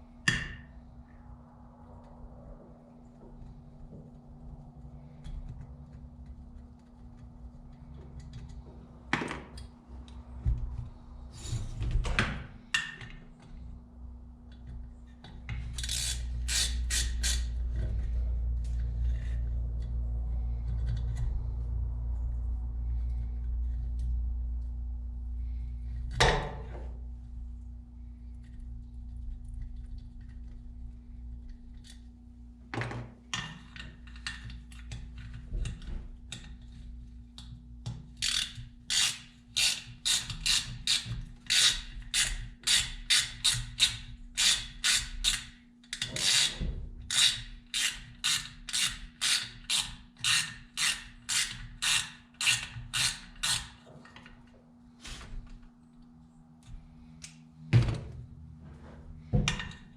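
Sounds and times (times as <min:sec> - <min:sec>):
faint steady hum: 0:00.0 - 0:59.9
ratchet wrench clicking: 0:15.7 - 0:17.5, 0:38.2 - 0:46.5, 0:47.1 - 0:53.8.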